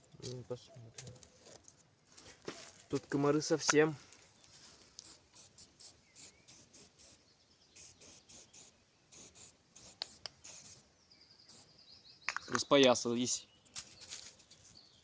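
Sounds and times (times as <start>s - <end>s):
scratchy rustles of handled sticks: 13.7s - 14.9s.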